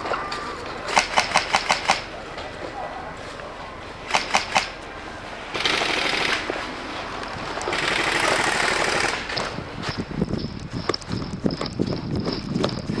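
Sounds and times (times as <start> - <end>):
airsoft gun full-auto bursts: 4.1 - 4.7, 5.5 - 6.5, 7.7 - 9.4
sharp clicks: 4.1 - 4.7.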